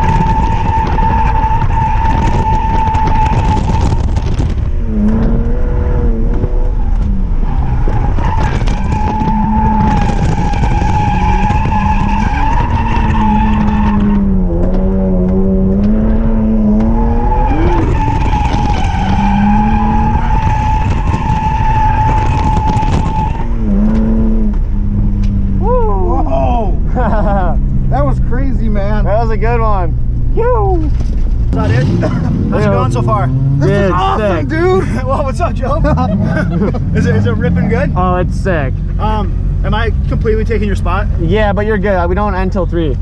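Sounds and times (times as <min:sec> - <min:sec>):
car engine revving: 0:00.0 - 0:43.0
tyres squealing: 0:07.4 - 0:14.2, 0:16.9 - 0:23.6.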